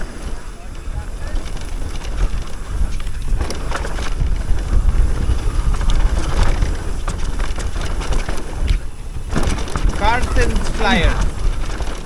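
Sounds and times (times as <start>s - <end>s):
bike rattling over rough ground: 0.0s - 12.0s
wind buffeting microphone: 0.0s - 12.0s.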